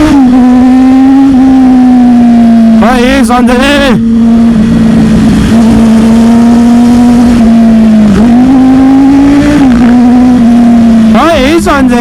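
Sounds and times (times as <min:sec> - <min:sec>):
motorcycle engine at high revs: 0:00.0 - 0:12.0
wind noise: 0:04.1 - 0:11.6.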